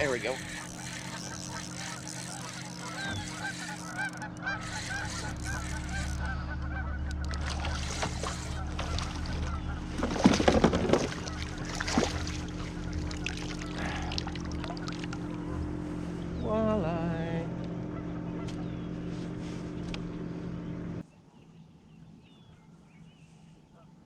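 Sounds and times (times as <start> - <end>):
birds calling: 0.0 - 24.0
fish splashing at water surface: 7.2 - 15.2.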